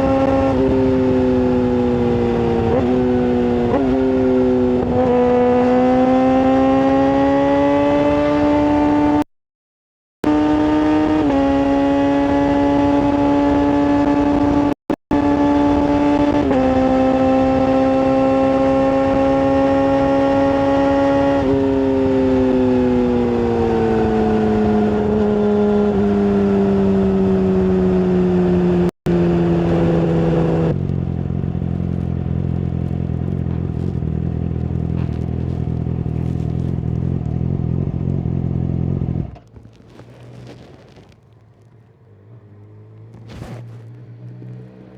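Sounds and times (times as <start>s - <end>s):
motorcycle engine high-pitched: 10.3s - 39.2s.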